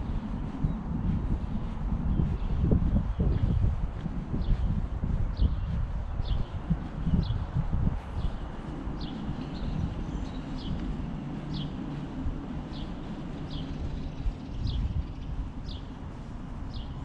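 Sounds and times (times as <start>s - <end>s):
steady low rumble: 0.0s - 17.0s
bird chirping: 5.4s - 17.0s.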